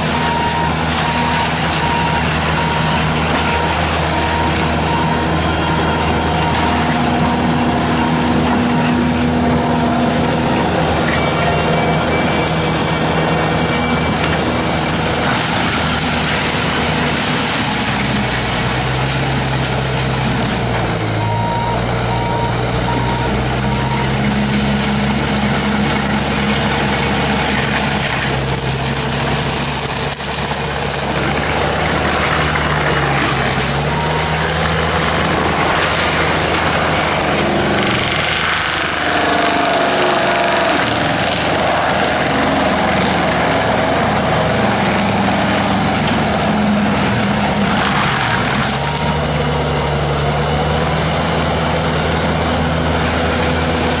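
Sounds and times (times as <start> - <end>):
diesel engine running hard: 0.0 - 54.0
backup alarm beeping: 0.2 - 9.0, 10.9 - 12.9, 21.1 - 24.4, 33.8 - 35.6.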